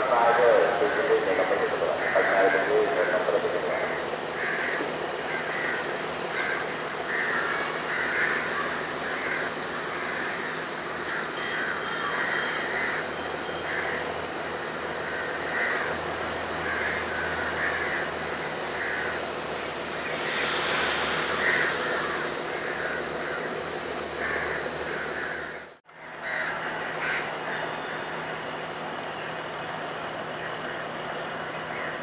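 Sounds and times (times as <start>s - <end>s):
diesel train rumbling: 0.0s - 32.0s
harsh bird calls: 0.2s - 19.3s, 20.0s - 25.6s.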